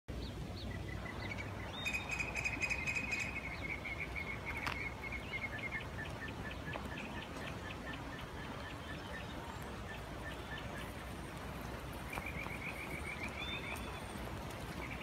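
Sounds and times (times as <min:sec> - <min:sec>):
bird chirping and trilling: 0:00.6 - 0:11.1.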